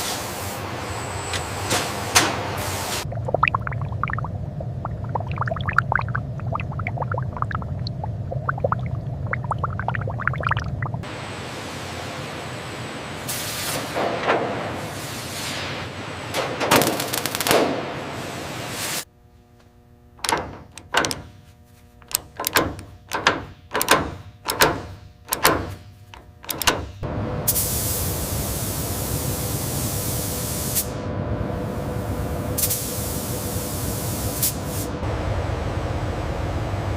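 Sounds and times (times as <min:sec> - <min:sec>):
low steady hum: 0:03.0 - 0:13.2
machinery hiss with whooshes: 0:11.1 - 0:16.2, 0:27.5 - 0:31.0, 0:31.6 - 0:35.0
spray-like hiss: 0:13.3 - 0:14.0, 0:27.5 - 0:31.0, 0:32.6 - 0:34.9.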